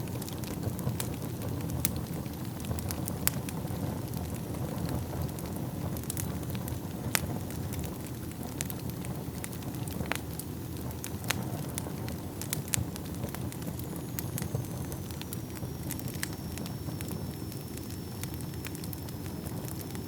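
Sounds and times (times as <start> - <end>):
fire crackling and popping: 0.0 - 20.0
low rumble of flames: 0.0 - 20.0
faint high whistle: 13.7 - 20.0.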